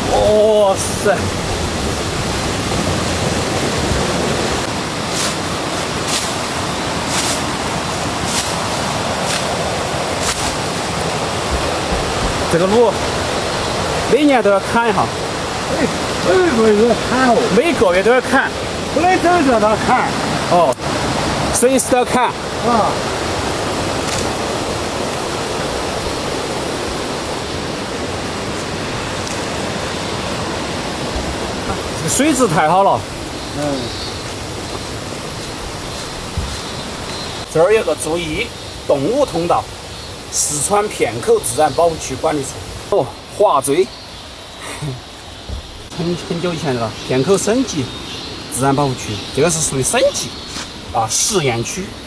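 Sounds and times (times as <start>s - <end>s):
rushing mountain river: 0.0s - 52.0s
footsteps scuffing on trail: 4.9s - 12.5s, 28.5s - 30.3s, 33.1s - 37.4s, 50.4s - 50.9s.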